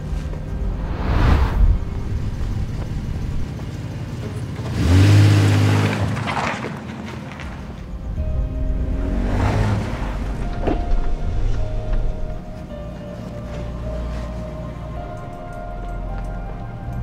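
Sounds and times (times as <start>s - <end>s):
rush of noise: 0.0s - 3.9s
car engine revving: 0.5s - 6.0s, 8.0s - 12.0s.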